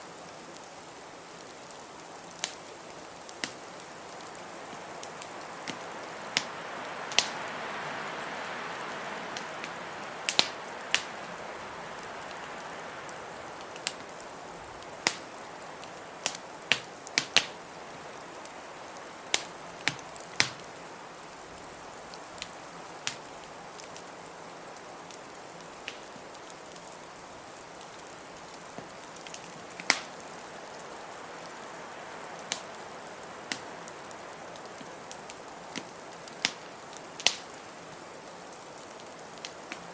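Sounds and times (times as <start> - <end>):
wood fire crackling: 0.0 - 39.9
blizzard wind rushing: 3.8 - 16.3.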